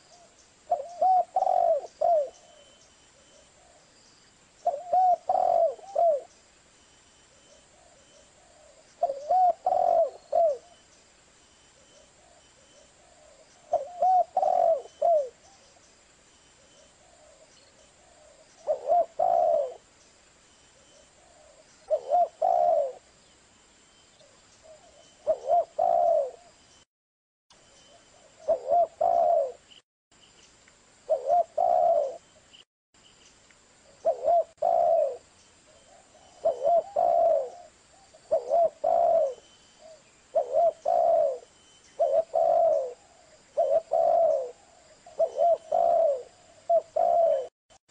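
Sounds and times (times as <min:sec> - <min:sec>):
dove cooing: 0:00.0 - 0:03.8, 0:04.6 - 0:06.3, 0:07.7 - 0:10.8, 0:12.0 - 0:15.7, 0:16.6 - 0:19.9, 0:20.8 - 0:23.1, 0:24.6 - 0:26.6, 0:28.1 - 0:29.7, 0:31.1 - 0:32.2, 0:33.9 - 0:47.5.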